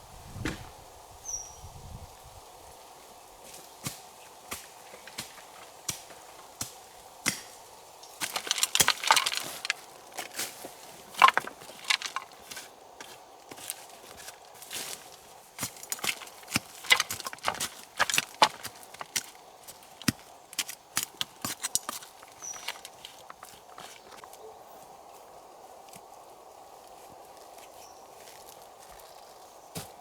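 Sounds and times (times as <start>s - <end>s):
leafy branches rustling: 0.0s - 30.0s
wood being chopped: 3.9s - 7.6s, 8.2s - 9.8s, 15.6s - 23.4s.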